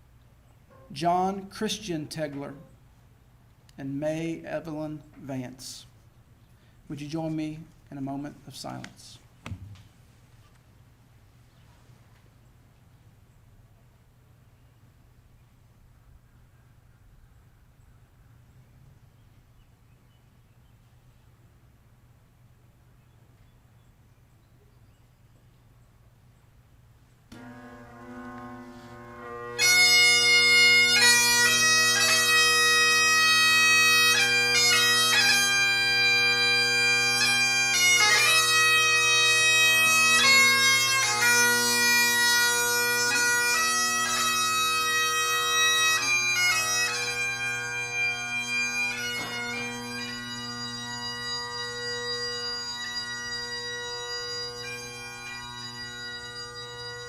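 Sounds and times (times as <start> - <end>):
bagpipes playing slow lament: 27.3 - 57.0.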